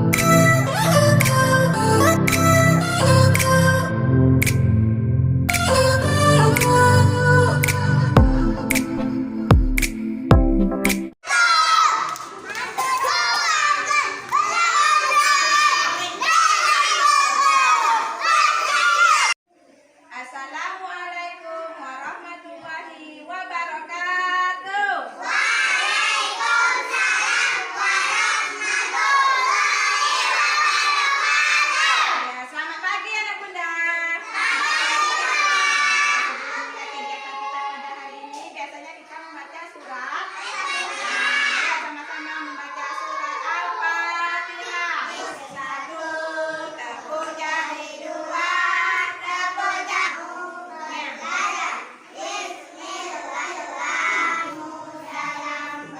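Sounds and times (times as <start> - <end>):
person singing: 0.0 - 4.8, 5.5 - 11.0
children singing together: 5.5 - 9.5, 11.3 - 19.4, 25.1 - 32.2, 34.2 - 38.4, 40.2 - 55.9.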